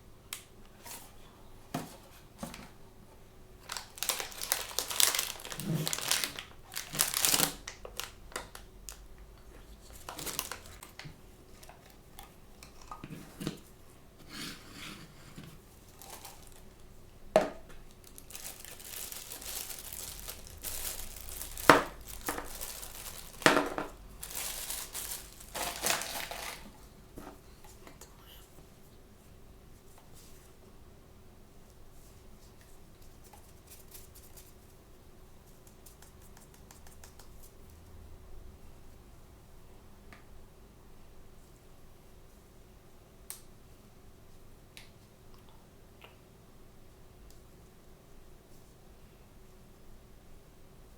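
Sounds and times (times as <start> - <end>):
plastic packaging crinkling and tearing: 3.6 - 9.0, 9.7 - 11.1, 15.9 - 16.8, 17.9 - 26.8.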